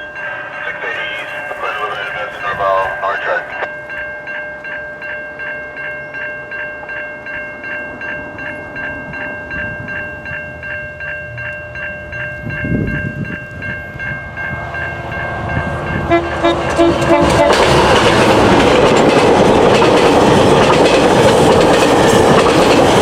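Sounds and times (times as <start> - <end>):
level crossing bell ringing: 0.0 - 17.1
train rumbling: 0.0 - 23.0.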